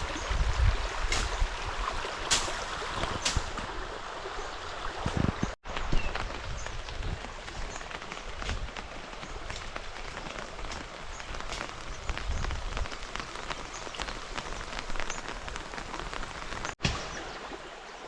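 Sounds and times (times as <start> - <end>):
rain falling: 0.0 - 17.8
raindrops ticking: 5.8 - 16.8.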